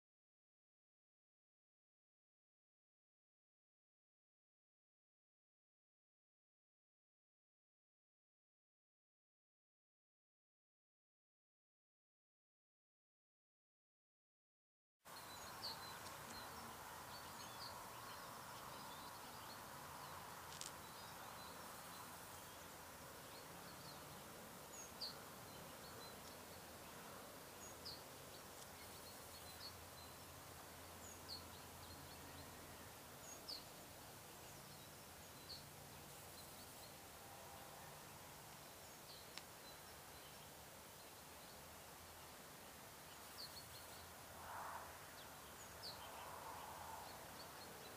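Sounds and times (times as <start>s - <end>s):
faint outdoor ambience: 15.1s - 47.9s.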